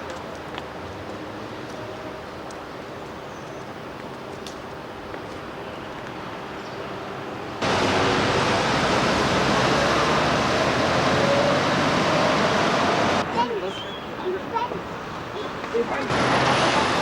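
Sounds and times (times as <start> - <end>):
loud rushing noise: 7.6 - 13.2, 16.1 - 17.0
traffic hum: 7.6 - 17.0.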